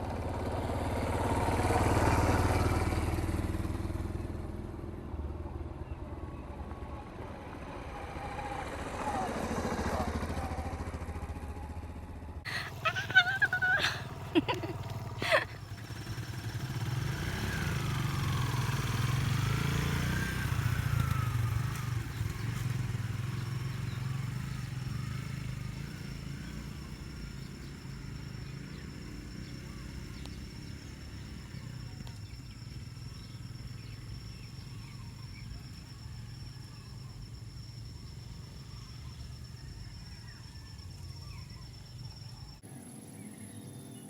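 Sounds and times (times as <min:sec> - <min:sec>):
motorcycle engine passing: 0:00.4 - 0:04.6, 0:12.5 - 0:44.0
high insect drone: 0:12.5 - 0:44.0.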